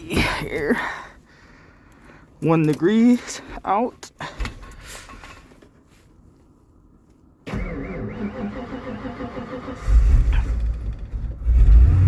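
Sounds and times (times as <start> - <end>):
starter motor cranking engine: 7.5 - 12.0.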